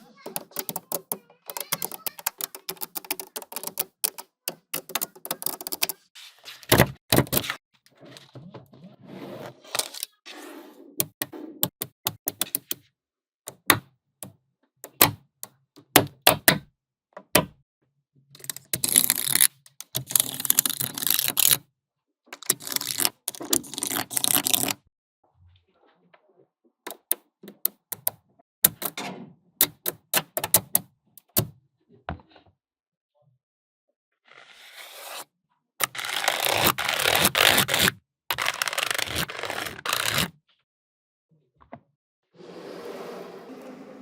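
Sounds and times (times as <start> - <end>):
magnetic balls clicking: 0.2 - 6.0.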